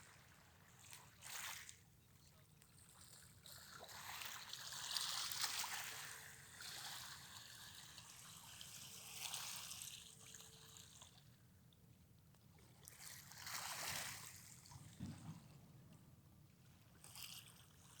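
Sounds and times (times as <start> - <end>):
sea water sloshing and splashing: 3.2 - 11.3, 12.6 - 15.8.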